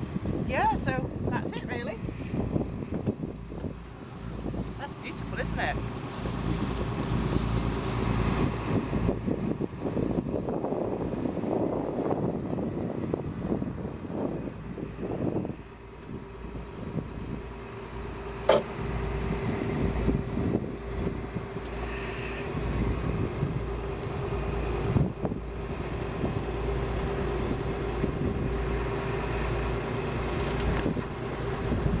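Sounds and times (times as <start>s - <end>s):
wind buffeting microphone: 0.0s - 32.0s
steady hum: 13.2s - 32.0s.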